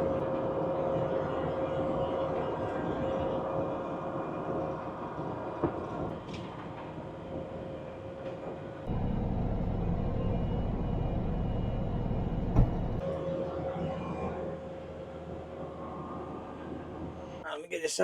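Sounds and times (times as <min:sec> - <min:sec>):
diesel engine running: 0:08.9 - 0:13.0
heavy low rumble: 0:08.9 - 0:13.0.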